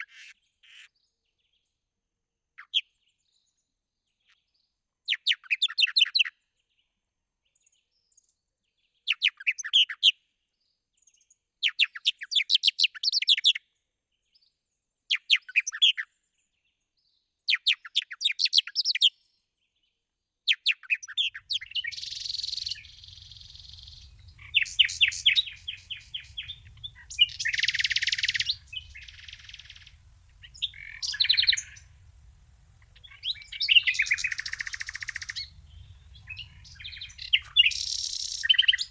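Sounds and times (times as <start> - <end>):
bird chirping in trilled phrases: 21.1 - 38.9
low background rumble: 21.4 - 38.9.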